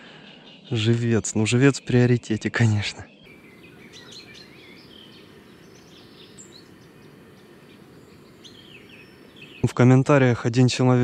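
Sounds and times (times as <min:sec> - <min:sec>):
low outdoor background hiss: 0:03.1 - 0:11.0
birds chirping and calling: 0:03.3 - 0:09.8.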